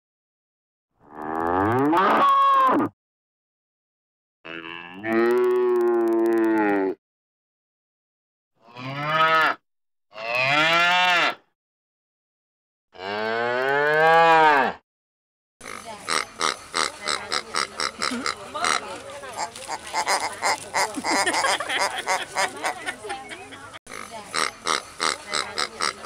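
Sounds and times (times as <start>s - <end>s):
cows mooing: 13.0s - 14.8s
pigs grunting: 15.6s - 22.8s, 23.9s - 26.0s.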